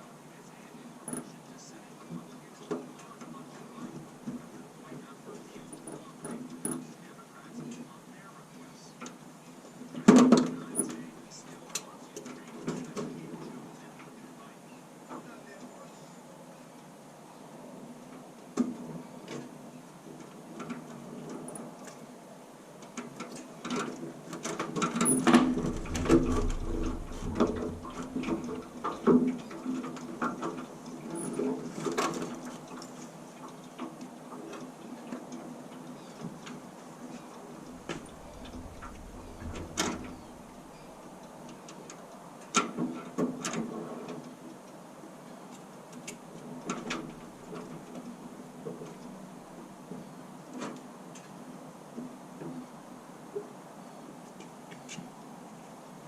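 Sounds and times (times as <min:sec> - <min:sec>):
irregular clicks and knocks: 0:22.9 - 0:30.6, 0:37.6 - 0:41.4
steady low hum: 0:25.1 - 0:29.7, 0:37.3 - 0:41.7
dull thumps: 0:25.3 - 0:29.1.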